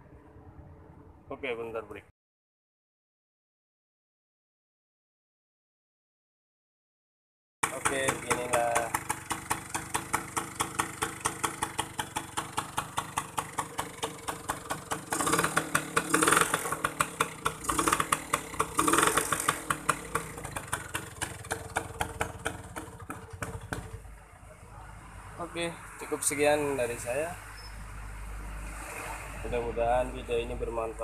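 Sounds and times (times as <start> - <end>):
motorcycle engine idling and revving: 7.6 - 31.0.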